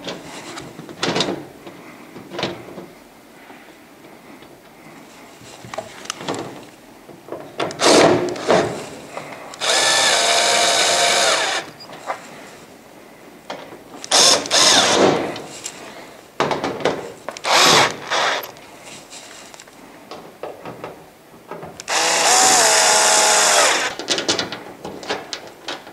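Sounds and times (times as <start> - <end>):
cordless drill driving screws: 7.8 - 8.6, 9.6 - 11.8, 14.0 - 15.2, 17.4 - 18.6, 21.8 - 24.0.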